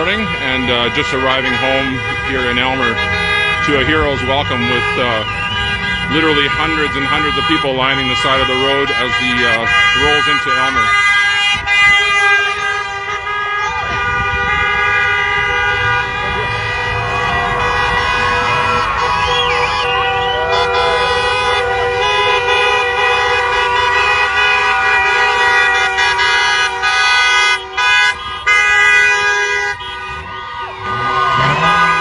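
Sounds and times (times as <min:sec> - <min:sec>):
crowd voices: 0:00.0 - 0:32.0
vehicle horns honking: 0:00.0 - 0:32.0.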